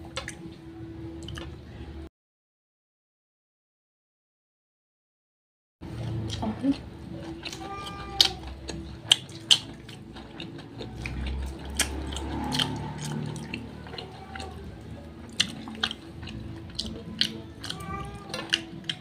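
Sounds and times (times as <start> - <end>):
wet chewing and lip smacks: 7.2 - 19.0.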